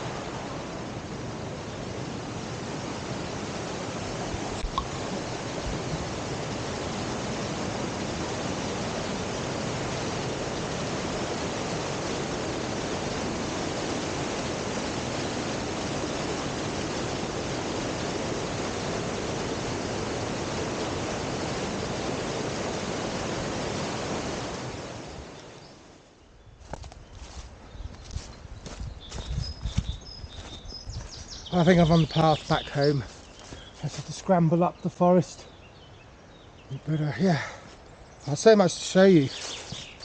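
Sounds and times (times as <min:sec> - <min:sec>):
waterfall rushing: 0:00.0 - 0:25.4.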